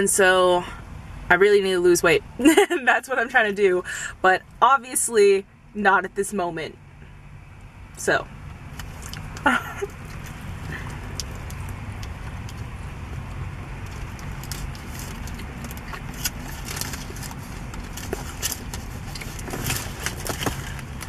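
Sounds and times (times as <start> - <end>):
low steady car cabin hum: 0.0 - 21.0
person chewing food: 8.7 - 21.0.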